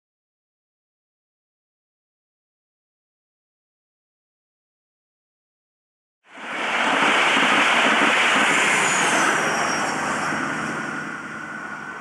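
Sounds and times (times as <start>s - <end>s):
high whine falling in pitch: 6.3s - 12.0s
train roaring past: 6.3s - 12.0s.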